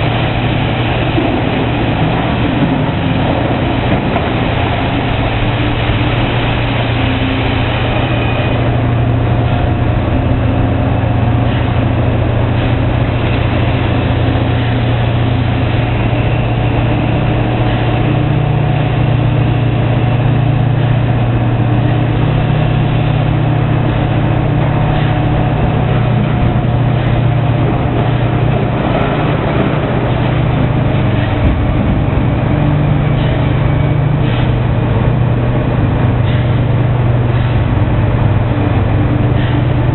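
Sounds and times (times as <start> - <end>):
diesel excavator engine running: 0.0 - 39.9.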